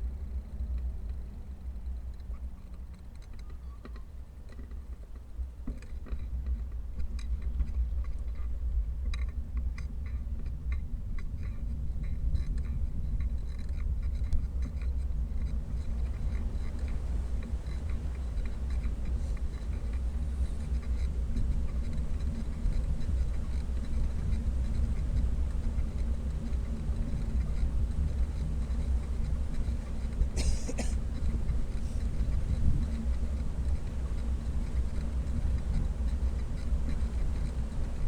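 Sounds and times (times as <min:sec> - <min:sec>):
wind rumbling on microphone: 0:00.0 - 0:38.0.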